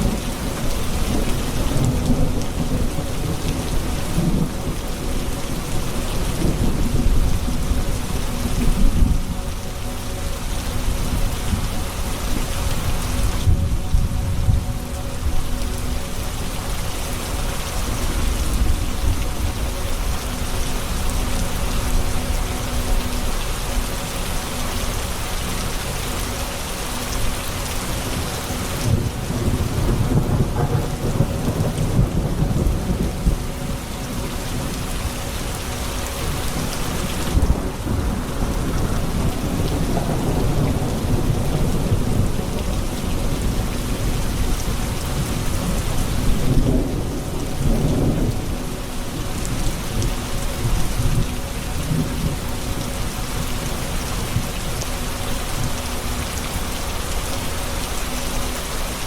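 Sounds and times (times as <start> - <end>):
heavy rain hissing: 0.0 - 59.0
low rolling thunder: 28.1 - 34.8, 36.3 - 53.1.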